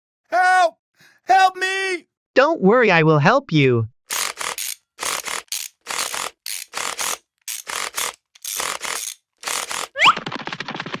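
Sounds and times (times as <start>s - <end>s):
fast ratcheting clicks: 4.1s - 10.0s.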